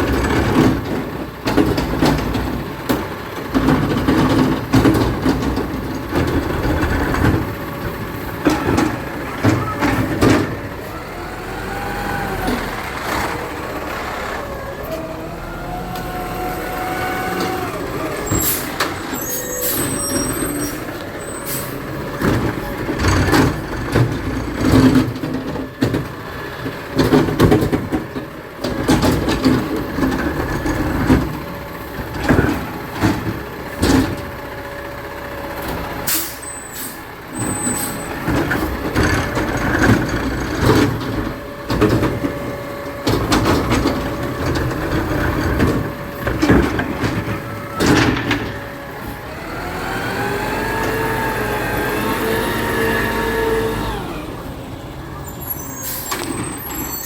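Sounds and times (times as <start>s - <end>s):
garbage truck engine running: 0.0s - 57.0s
hydraulics revving: 0.0s - 57.0s
loud clanks and bangs: 17.4s - 34.6s, 35.7s - 49.2s.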